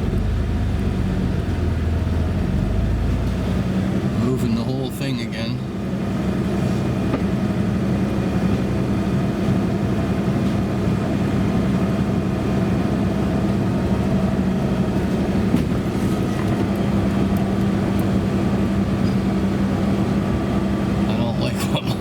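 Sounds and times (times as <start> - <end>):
electric winch droning: 10.8 - 21.9.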